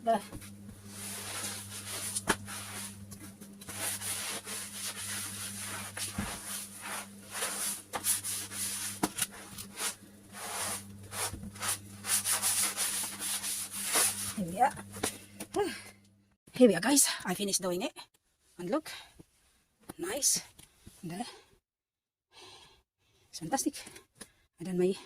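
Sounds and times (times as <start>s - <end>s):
steady low hum: 0.0s - 16.3s
hand scrubbing floor: 0.4s - 14.9s.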